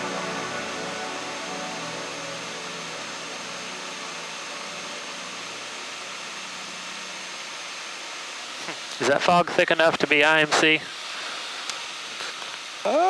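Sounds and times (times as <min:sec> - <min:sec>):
propeller aircraft engine droning: 0:00.0 - 0:08.9.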